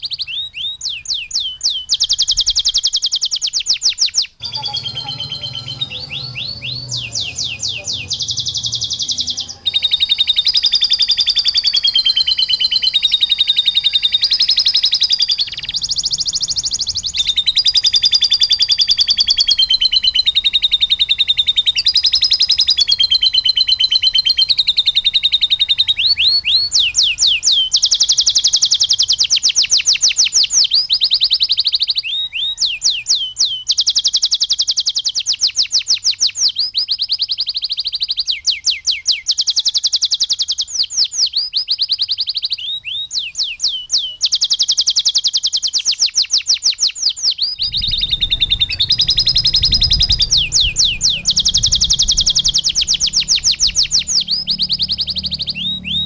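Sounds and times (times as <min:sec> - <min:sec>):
canary singing trills: 0:00.0 - 0:56.0
low hum: 0:47.6 - 0:56.0.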